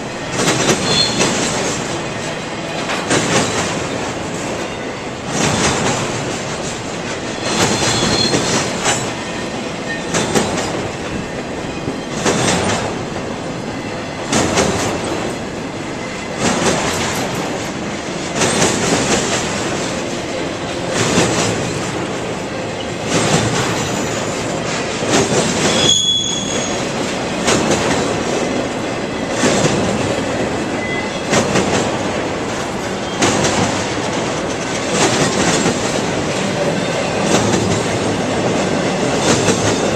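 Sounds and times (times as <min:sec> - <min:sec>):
train wheels clattering: 0:00.0 - 0:39.9
high wheel squeals: 0:00.7 - 0:01.4, 0:07.4 - 0:08.6, 0:25.6 - 0:26.9.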